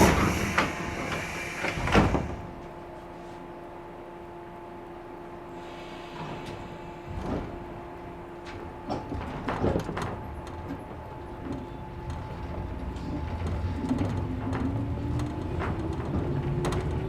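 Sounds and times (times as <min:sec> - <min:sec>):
electric train motor hum: 0:00.0 - 0:02.8
train clunks and clicks: 0:00.0 - 0:03.0, 0:05.8 - 0:17.0.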